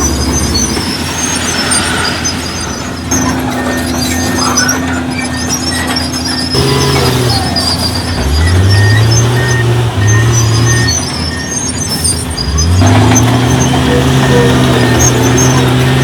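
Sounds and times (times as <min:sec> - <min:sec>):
faint high squeaks: 0:00.0 - 0:16.0
heavy diesel engine revving: 0:00.0 - 0:16.0.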